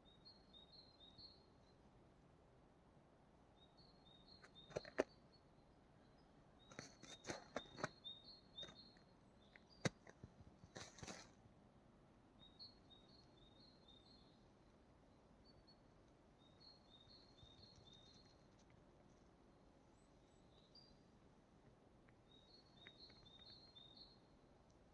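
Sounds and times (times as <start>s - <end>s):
small birds chirping: 3.6s - 11.3s, 12.4s - 24.9s
sharp clicks and crunches: 4.4s - 5.1s, 6.7s - 8.0s, 9.5s - 11.4s.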